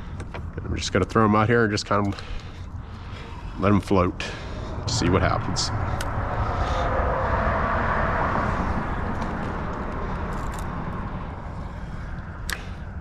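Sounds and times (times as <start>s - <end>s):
low rumble: 2.7s - 13.0s
vehicle passing overhead: 2.9s - 13.0s.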